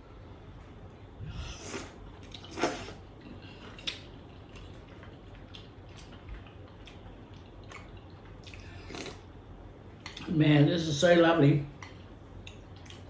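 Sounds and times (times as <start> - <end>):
slurping broth: 1.3 - 3.0.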